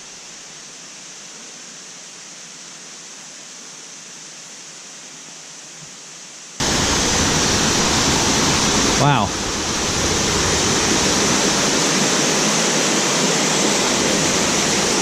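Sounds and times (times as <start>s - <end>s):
waterfall rushing: 6.6s - 15.0s.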